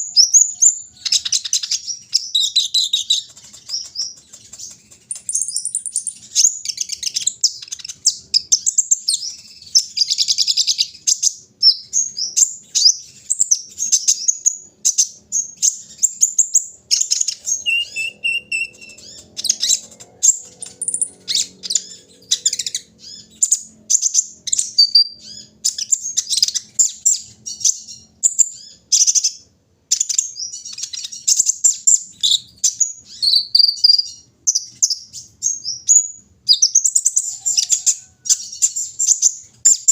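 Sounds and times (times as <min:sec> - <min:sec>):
bird chirping and trilling: 0:00.0 - 0:39.9.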